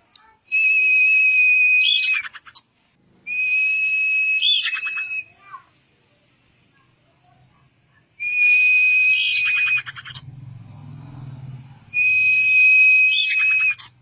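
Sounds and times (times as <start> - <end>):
bird whistling calls with rattling run: 4.4 - 5.4, 8.2 - 10.5, 11.8 - 14.0.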